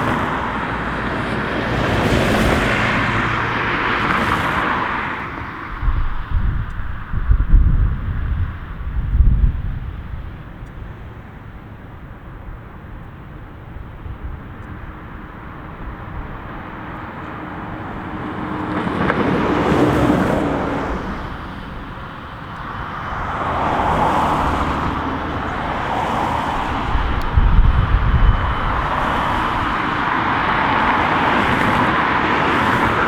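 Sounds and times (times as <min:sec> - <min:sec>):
jet engine rumble: 0:15.4 - 0:33.0.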